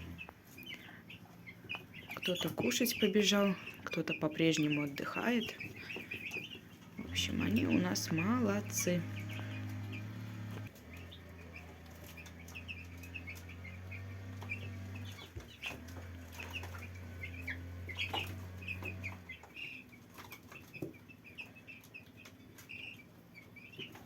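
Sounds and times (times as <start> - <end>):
steady low hum: 0.0 - 20.0
chicks peeping: 0.0 - 24.0.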